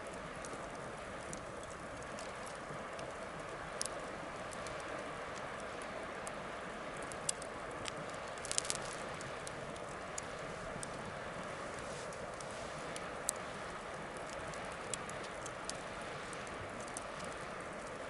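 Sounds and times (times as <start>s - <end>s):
bonfire crackling and hissing: 0.0s - 18.0s
sharp crackling pops: 0.1s - 18.0s.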